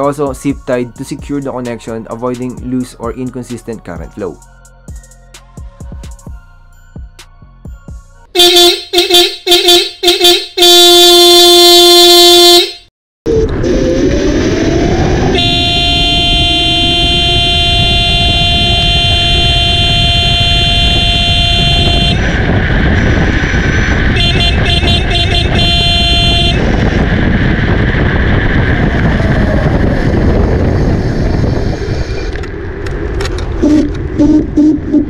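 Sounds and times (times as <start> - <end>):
long steady horn-like tone: 8.4 - 12.9, 15.1 - 26.9
scooter horn toots: 8.4 - 12.9, 15.3 - 27.0
rising whine: 13.3 - 35.0
road noise: 13.3 - 35.0
wind noise: 13.3 - 35.0.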